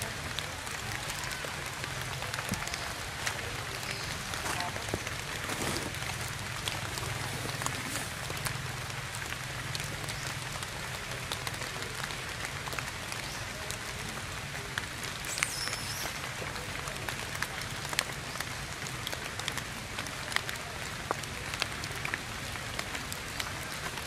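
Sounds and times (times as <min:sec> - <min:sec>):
rain falling on foliage: 0:00.0 - 0:24.0.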